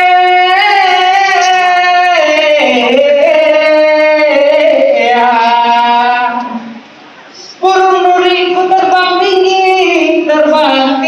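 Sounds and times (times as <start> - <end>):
person singing long held notes: 0.0 - 6.8.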